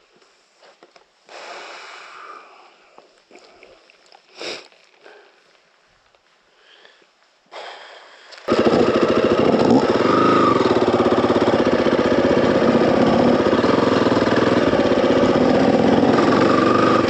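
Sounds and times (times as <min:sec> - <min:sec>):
dirt bike engine running: 0:08.5 - 0:17.0.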